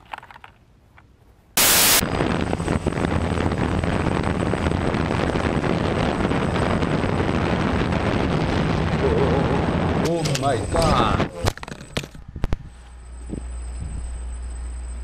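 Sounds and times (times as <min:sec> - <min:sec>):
steady rushing noise: 0:01.6 - 0:11.4
burst of static: 0:01.6 - 0:12.0
low hum: 0:01.6 - 0:15.0
thin high whine: 0:01.6 - 0:15.0.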